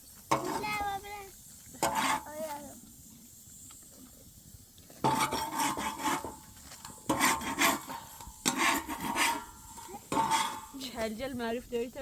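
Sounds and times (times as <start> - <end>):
hard rasping scrapes: 1.8 - 2.3, 5.1 - 10.8.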